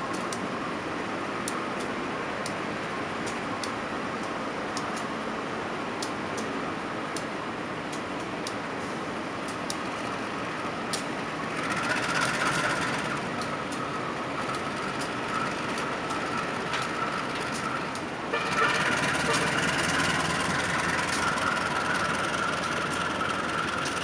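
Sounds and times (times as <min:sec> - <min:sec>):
train rumbling past: 0:08.4 - 0:24.0
high steady whine: 0:08.5 - 0:24.0.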